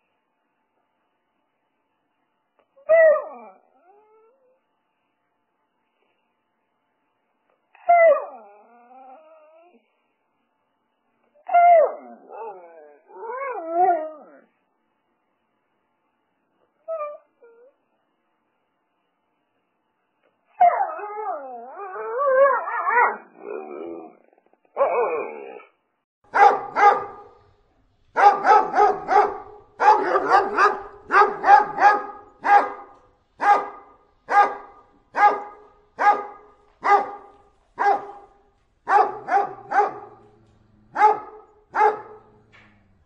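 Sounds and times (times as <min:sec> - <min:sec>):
puppy howling: 0:02.8 - 0:04.5, 0:11.4 - 0:14.5, 0:20.6 - 0:25.7, 0:28.2 - 0:34.6
dog barking sharply: 0:26.3 - 0:27.4, 0:28.2 - 0:38.3, 0:38.9 - 0:40.2, 0:41.0 - 0:42.2.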